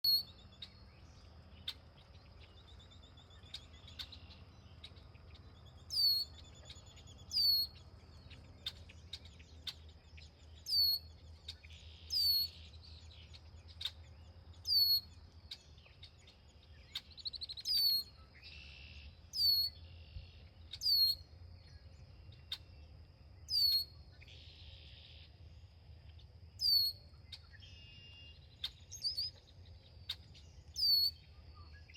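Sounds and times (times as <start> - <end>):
bird calling with high downward notes: 0.0 - 21.9, 23.5 - 25.3, 26.6 - 31.9
short buzzy bird calls: 7.3 - 7.8.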